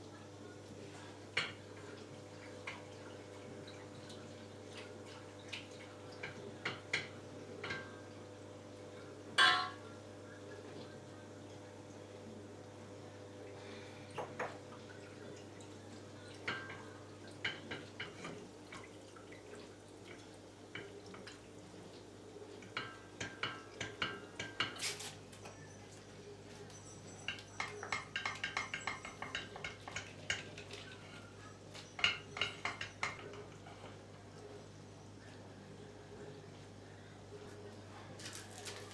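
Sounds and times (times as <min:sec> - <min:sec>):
dishes and utensils clinking: 0:09.4 - 0:09.9, 0:26.7 - 0:34.0.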